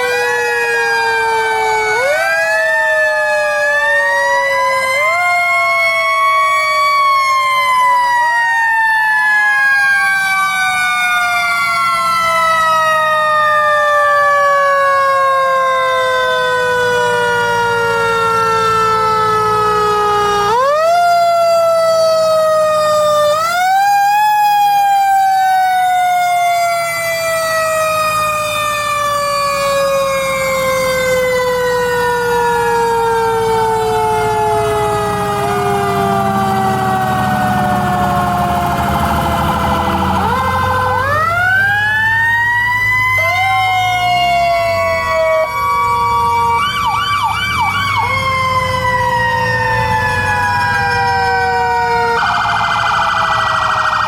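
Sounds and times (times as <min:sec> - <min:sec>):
fire truck sirens wailing: 0:00.0 - 0:54.0
low engine hum: 0:34.4 - 0:41.8.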